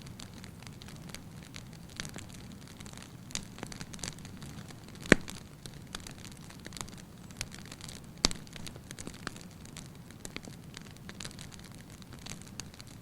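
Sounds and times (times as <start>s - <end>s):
fire crackling: 0.0s - 13.0s
low rumble of flames: 0.0s - 13.0s
sharp loud pops of fire: 4.9s - 5.4s.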